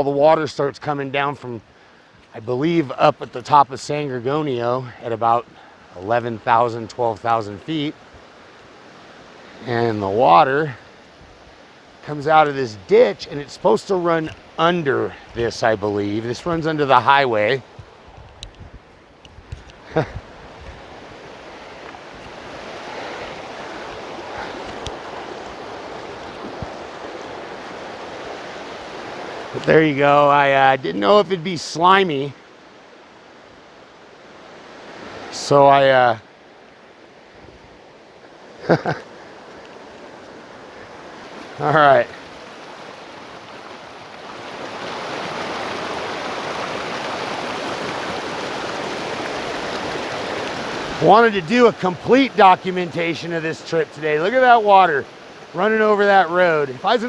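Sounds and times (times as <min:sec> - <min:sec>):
water rushing from culvert: 0:00.0 - 0:18.2, 0:18.9 - 0:57.0.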